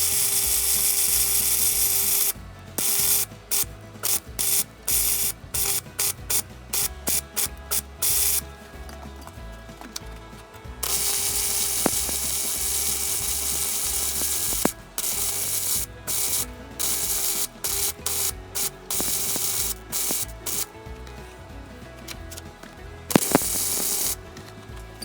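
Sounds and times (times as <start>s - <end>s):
background music: 0.0s - 25.0s
welder hissing: 0.0s - 25.0s.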